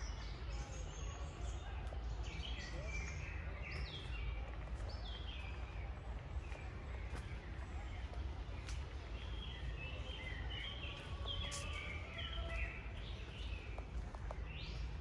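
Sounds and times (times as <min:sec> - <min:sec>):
songbirds chirping and singing: 0:00.0 - 0:15.0.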